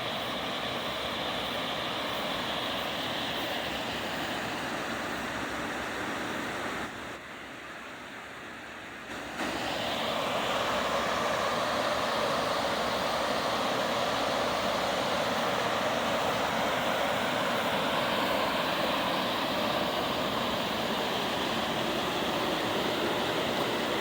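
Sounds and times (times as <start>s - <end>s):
waterfall rushing: 9.1s - 24.0s.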